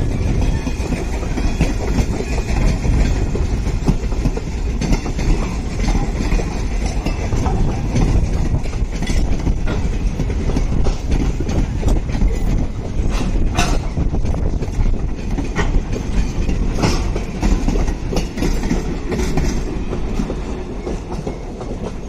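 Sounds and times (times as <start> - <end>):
train coaches rumbling past: 0.0 - 22.0
wheels clicking over rail joints: 0.0 - 22.0.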